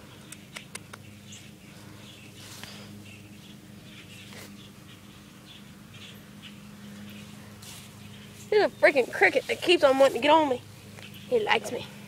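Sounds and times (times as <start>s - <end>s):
birds chirping faintly: 0.0s - 12.0s
steady low hum: 0.0s - 12.0s
sharp clicks: 0.3s - 1.1s.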